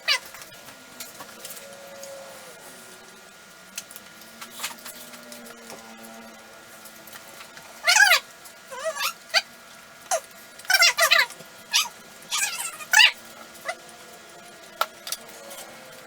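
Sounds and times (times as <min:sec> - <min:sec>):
pet's high wavering calls: 0:00.0 - 0:00.6, 0:07.8 - 0:09.5, 0:10.1 - 0:13.8.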